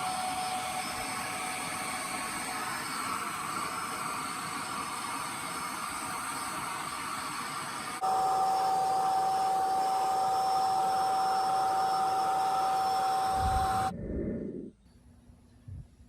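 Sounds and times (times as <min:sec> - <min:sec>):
electric motor whining: 0:08.0 - 0:13.9.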